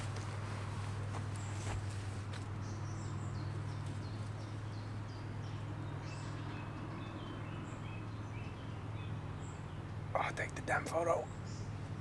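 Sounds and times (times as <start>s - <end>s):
rustles: 0.0s - 2.8s
songbird chirping: 0.0s - 11.9s.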